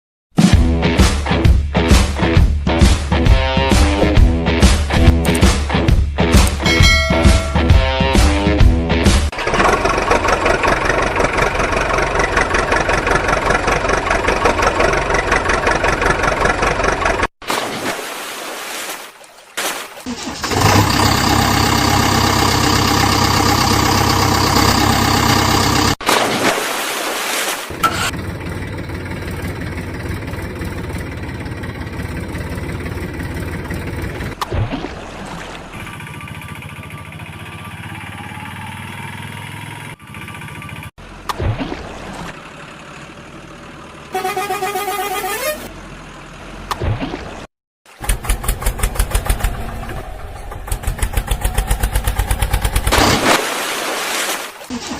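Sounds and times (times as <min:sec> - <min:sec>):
engines running: 0:01.8 - 0:17.3, 0:20.2 - 0:26.0, 0:27.6 - 0:53.4.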